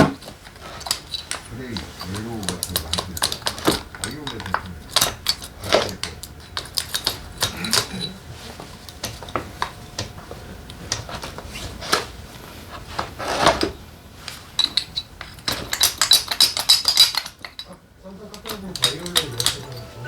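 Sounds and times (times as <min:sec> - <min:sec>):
tools and metal parts clinking: 0:00.3 - 0:08.2, 0:14.5 - 0:20.0.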